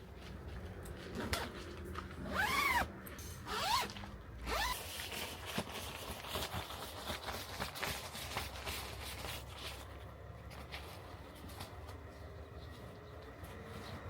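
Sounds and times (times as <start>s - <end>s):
zipper being pulled: 2.2s - 2.9s, 3.5s - 4.9s.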